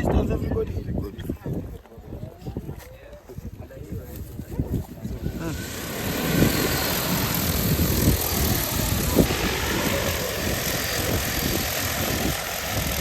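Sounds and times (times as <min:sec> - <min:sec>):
wind on microphone: 0:00.0 - 0:13.0
drone rotors humming: 0:05.1 - 0:13.0.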